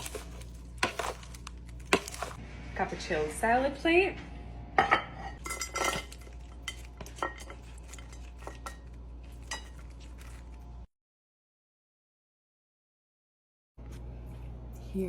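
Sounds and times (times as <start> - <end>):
utensils clinking on a plate: 0.0 - 2.4, 4.8 - 10.6.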